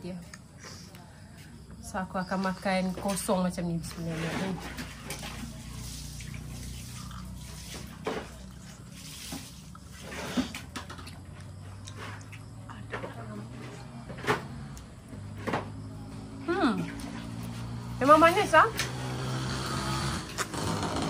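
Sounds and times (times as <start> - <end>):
wet chewing and mouth smacks: 6.6 - 12.6.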